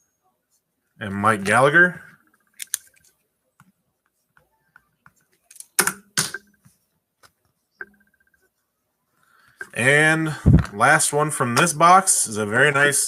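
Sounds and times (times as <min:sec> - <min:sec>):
cards and plastic holders clicking: 0:02.5 - 0:03.1.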